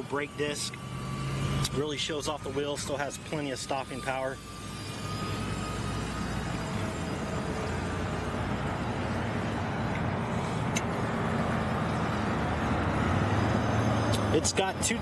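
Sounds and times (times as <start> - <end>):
motor vehicle rumble: 4.4 - 15.0.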